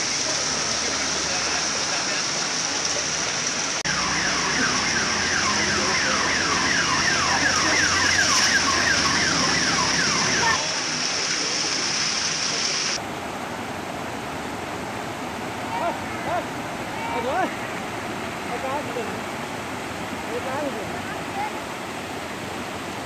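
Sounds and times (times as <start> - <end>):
floodwater rushing: 0.0 - 23.0
heavy rain and traffic hiss: 0.0 - 23.0
electronic alarm chirping: 3.9 - 10.6.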